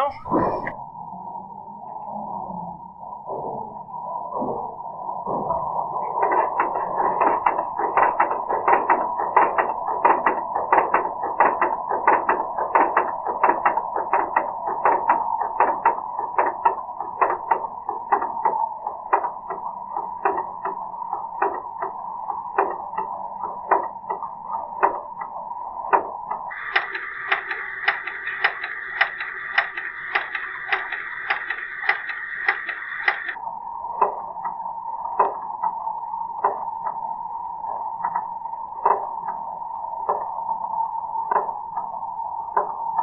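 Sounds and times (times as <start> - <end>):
engine drone: 26.5 - 33.4
sharp engine ticking: 26.5 - 33.4.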